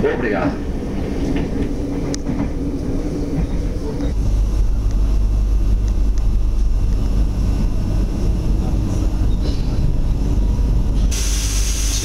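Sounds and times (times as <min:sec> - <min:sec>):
train wheels rumbling on track: 0:00.0 - 0:12.0
hiss of train passing wall: 0:11.0 - 0:12.0.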